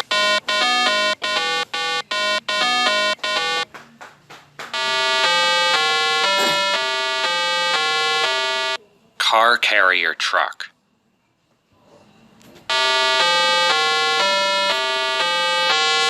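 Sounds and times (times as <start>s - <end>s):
synthesizer jingle: 0.0s - 3.6s, 4.8s - 8.8s, 12.7s - 16.0s.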